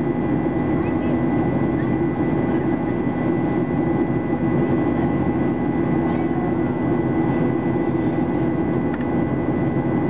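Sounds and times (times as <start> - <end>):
airplane cabin drone: 0.0 - 10.0
thin steady whine: 0.0 - 10.0.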